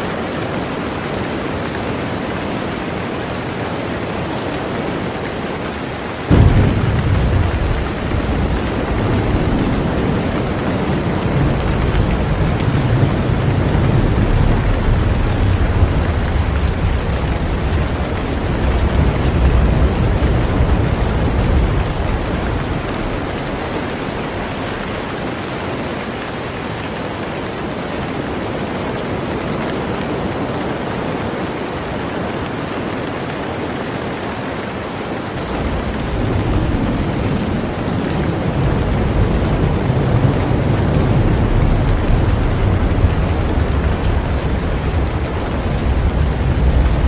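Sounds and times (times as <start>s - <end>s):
heavy rain on a boat: 0.0s - 47.0s
low rumble: 6.3s - 25.1s.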